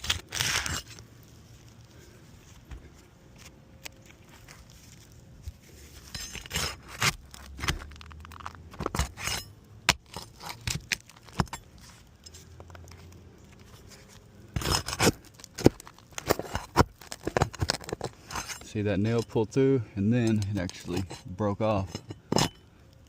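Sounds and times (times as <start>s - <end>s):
metal tool scraping shingles: 0.0s - 1.0s, 5.6s - 7.9s, 8.8s - 12.5s, 13.9s - 19.4s, 20.2s - 22.7s.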